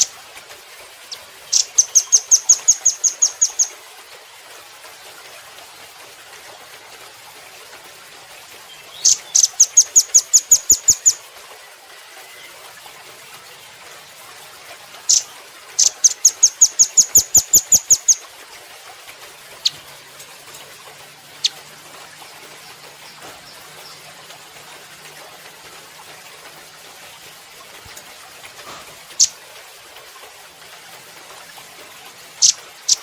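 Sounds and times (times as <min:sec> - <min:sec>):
bird chips and trills: 0:01.1 - 0:03.7, 0:08.7 - 0:11.2, 0:15.1 - 0:18.2, 0:21.3 - 0:21.6, 0:29.2 - 0:29.4, 0:32.4 - 0:33.0.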